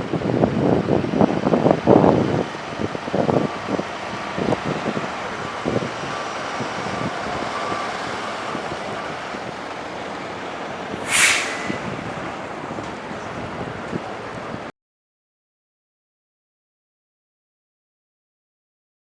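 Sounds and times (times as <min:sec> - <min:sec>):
short sharp hiss: 0:10.9 - 0:12.5.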